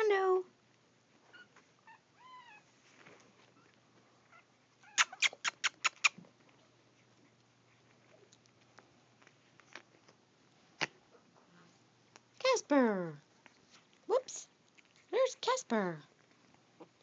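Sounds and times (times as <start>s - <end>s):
puppies squeaking: 4.3s - 6.3s.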